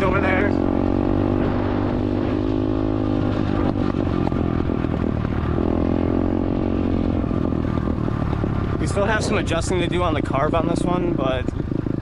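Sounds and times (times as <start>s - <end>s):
dirt bike engine revving: 0.0s - 12.0s
person talking: 8.8s - 11.3s.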